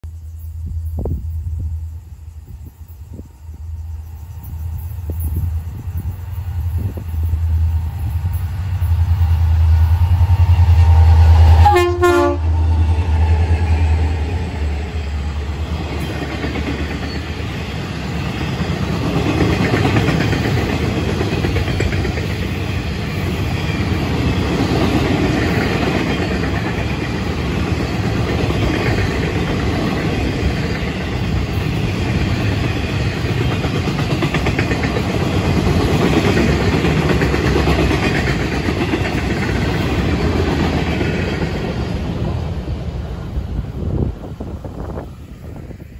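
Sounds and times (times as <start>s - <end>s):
diesel locomotive engines droning: 0.0s - 45.9s
freight cars rattling over track: 4.2s - 45.9s
train horn note: 10.4s - 14.2s.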